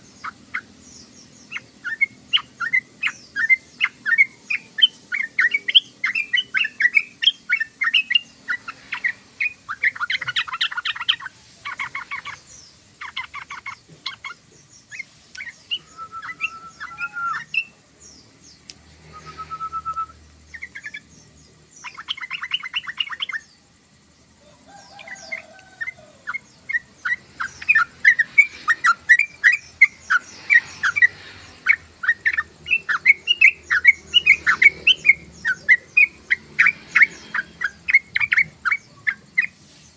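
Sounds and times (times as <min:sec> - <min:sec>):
bulbul chirping and trilling: 0:00.0 - 0:17.8, 0:18.4 - 0:23.6, 0:24.8 - 0:39.6
short whistled bird notes: 0:19.1 - 0:20.2.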